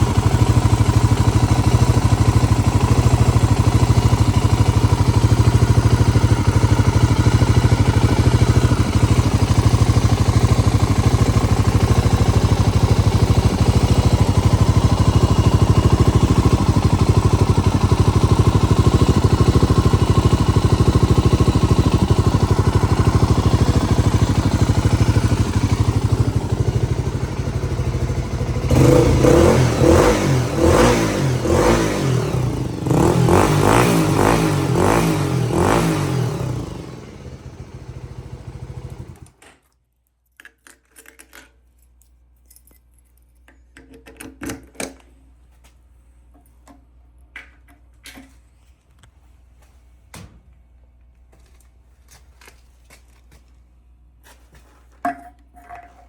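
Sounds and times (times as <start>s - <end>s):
motorcycle engine idling: 0.0s - 39.3s.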